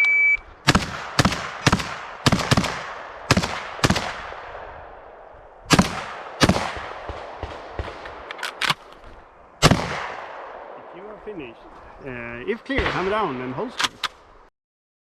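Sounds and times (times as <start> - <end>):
shot timer beep: 0.0 - 0.4
shotgun shots echoing: 0.6 - 9.0, 9.6 - 11.5, 12.5 - 14.2.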